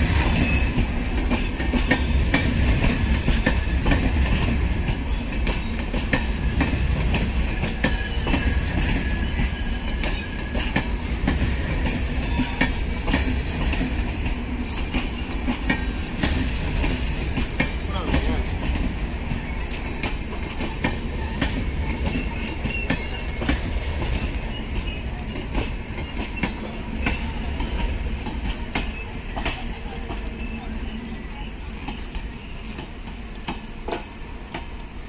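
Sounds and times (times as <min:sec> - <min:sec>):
train wheels clacking over rail joints: 0:00.0 - 0:30.6
train low rumble: 0:00.0 - 0:35.0.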